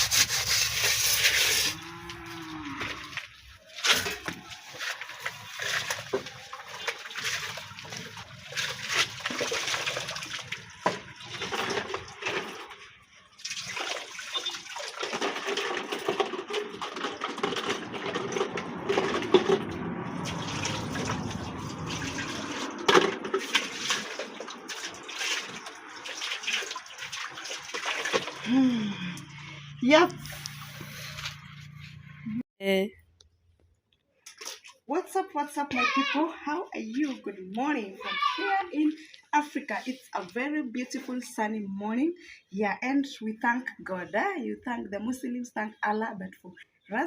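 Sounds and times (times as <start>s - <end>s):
water pouring and sloshing: 0.0s - 31.7s, 34.3s - 41.4s
pots knocking and scraping: 10.8s - 12.9s, 14.3s - 20.0s.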